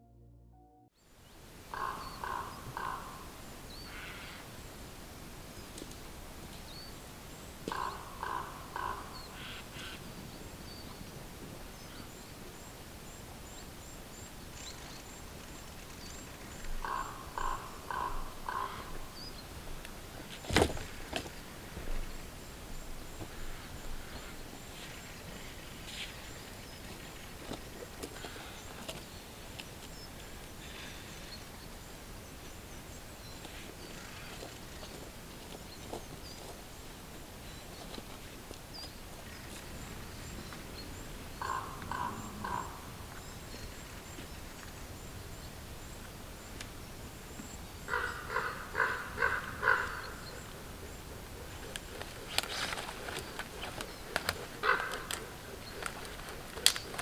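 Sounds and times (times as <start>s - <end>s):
twigs snapping underfoot: 51.8s - 57.0s.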